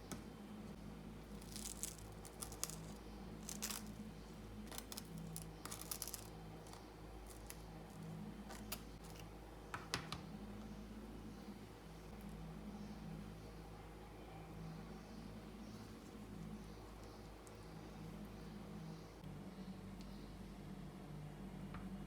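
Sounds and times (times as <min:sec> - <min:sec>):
crinkling handling sounds: 0:00.0 - 0:10.2
low steady hum: 0:00.0 - 0:22.0.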